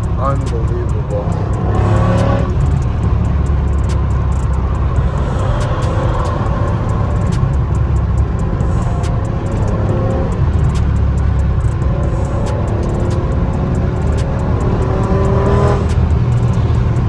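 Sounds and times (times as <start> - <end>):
car exhaust deep rumble: 0.0 - 17.0
sharp clicks: 0.0 - 17.0.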